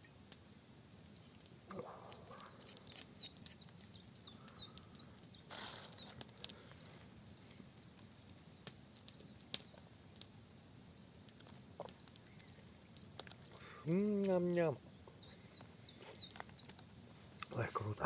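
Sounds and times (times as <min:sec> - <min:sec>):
small bird chirping: 0:01.2 - 0:06.2, 0:11.8 - 0:12.8, 0:14.7 - 0:18.0.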